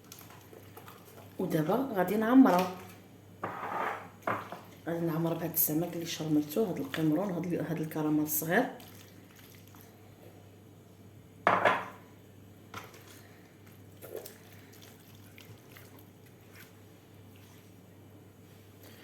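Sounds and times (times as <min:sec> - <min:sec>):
kitchen handling noise: 0:11.5 - 0:12.0.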